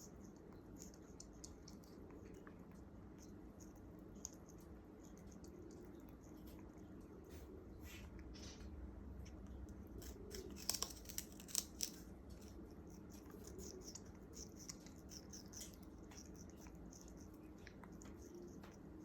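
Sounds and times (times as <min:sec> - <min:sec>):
parrot tearing at sugarcane: 0:09.6 - 0:18.8.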